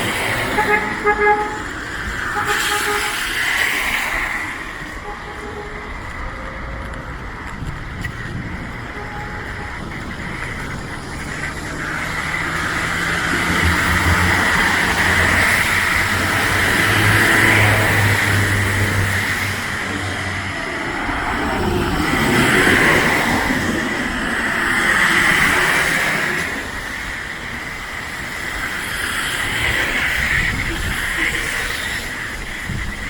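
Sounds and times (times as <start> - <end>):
approaching engine: 0.0 - 33.0
hiss of passing traffic: 0.0 - 33.0
vehicle horn toots: 0.4 - 3.6, 4.9 - 6.2, 9.0 - 10.7.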